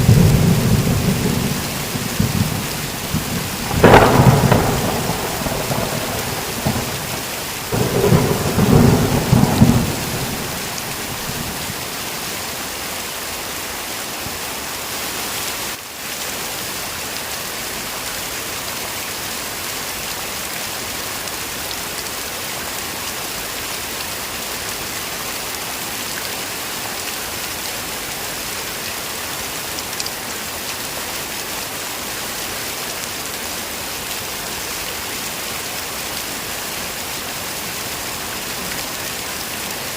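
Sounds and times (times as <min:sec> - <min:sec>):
thunder rumbling: 0:00.0 - 0:11.8
heavy rain: 0:00.0 - 0:39.9.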